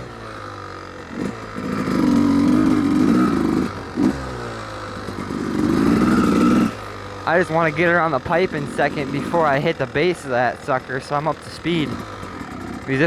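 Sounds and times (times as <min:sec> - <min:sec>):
two-stroke engine revving: 0:00.0 - 0:13.0.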